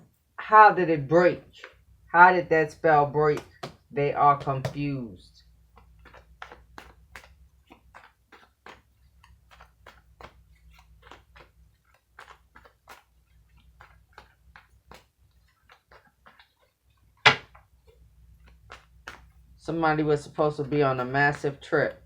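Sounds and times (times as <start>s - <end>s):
cards clicking and tapping: 5.6s - 19.4s.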